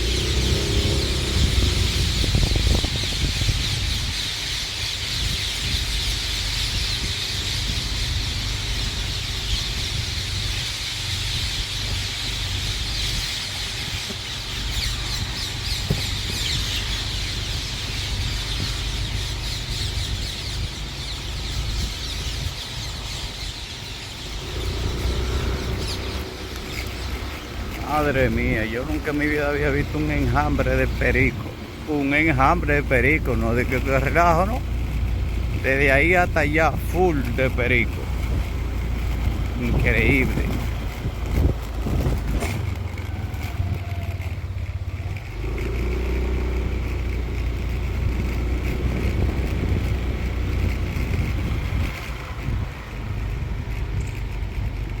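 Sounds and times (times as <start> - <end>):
parakeets screeching: 0.0 - 35.0.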